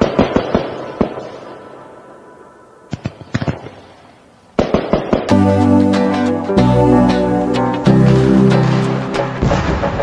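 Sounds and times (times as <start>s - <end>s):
background music: 5.3s - 10.0s
fireworks bangs: 9.4s - 10.0s.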